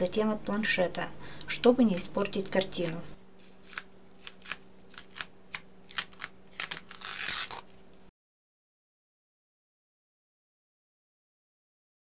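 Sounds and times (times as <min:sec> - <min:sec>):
adhesive tape peeling: 0:02.4 - 0:08.1.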